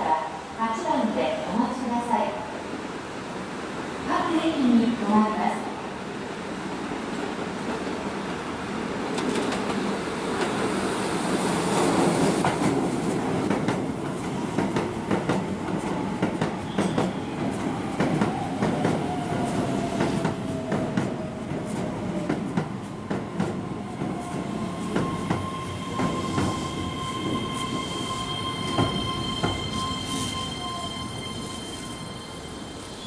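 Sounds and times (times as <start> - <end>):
high brake squeal: 24.8 - 33.0.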